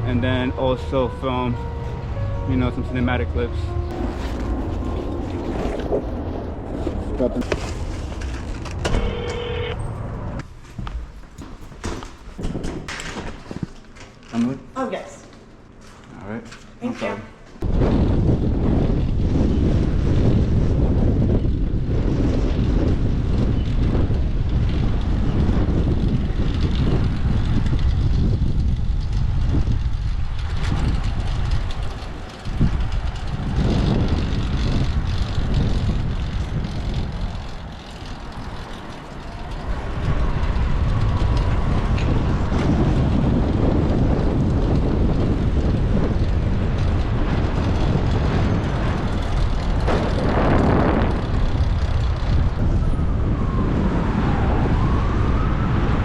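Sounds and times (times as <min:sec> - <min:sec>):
city traffic noise: 0:00.0 - 0:12.4, 0:18.6 - 0:56.0
wind buffeting microphone: 0:00.0 - 0:13.7, 0:17.6 - 0:56.0.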